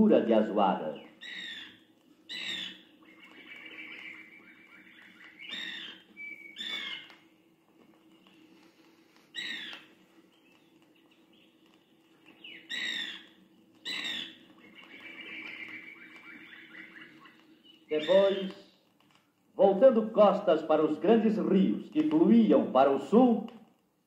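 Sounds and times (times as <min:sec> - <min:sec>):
loud sharp bird calls: 0:00.0 - 0:07.3, 0:08.2 - 0:18.8
birds chattering: 0:00.0 - 0:23.2.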